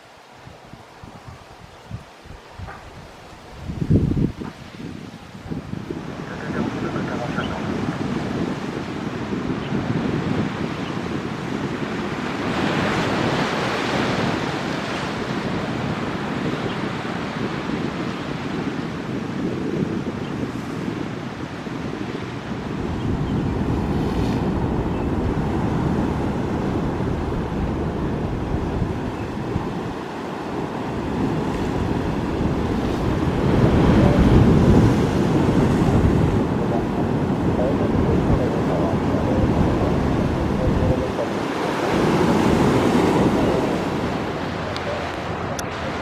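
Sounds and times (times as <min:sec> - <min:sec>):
wind buffeting microphone: 0:00.4 - 0:46.0
jet engines rumbling: 0:23.8 - 0:46.0
jet engines roaring: 0:35.3 - 0:42.3, 0:43.2 - 0:46.0.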